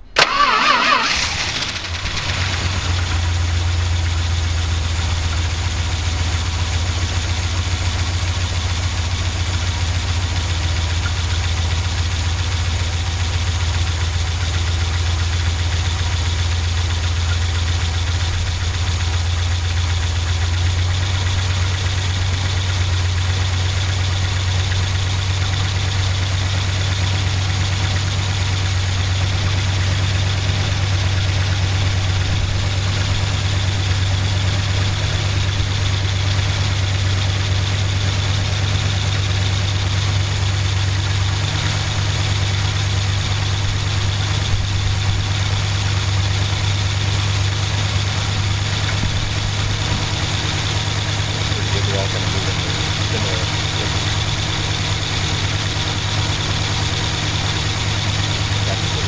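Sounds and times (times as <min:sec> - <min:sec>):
car engine idling: 0:00.0 - 0:59.0
valvetrain ticking: 0:00.1 - 0:59.0.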